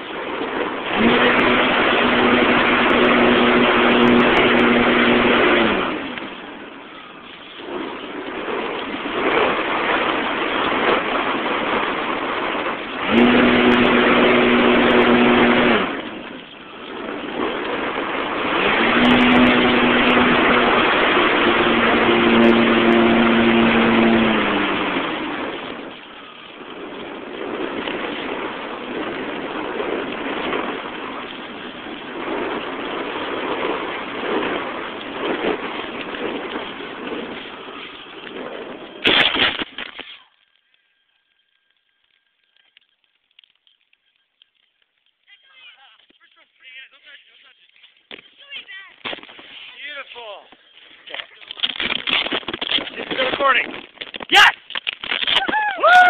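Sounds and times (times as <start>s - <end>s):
wind rush on microphone: 0.0s - 39.5s, 51.5s - 56.0s
model airplane motor humming: 0.9s - 6.4s, 12.9s - 16.5s, 18.4s - 26.1s.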